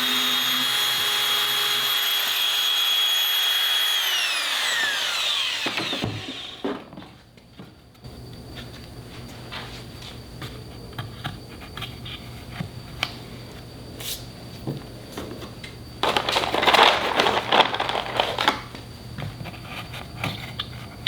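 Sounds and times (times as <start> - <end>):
wood scraping and crackling: 16.0 - 18.8.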